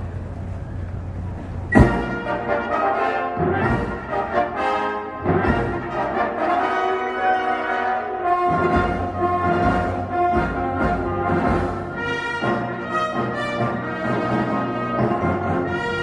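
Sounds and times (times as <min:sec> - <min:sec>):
brass band playing: 0:01.7 - 0:16.0.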